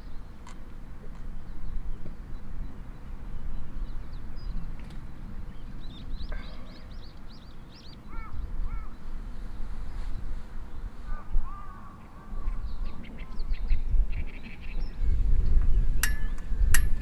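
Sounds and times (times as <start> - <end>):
birds chirping: 2.6 - 9.0
low bird calls: 3.8 - 9.1.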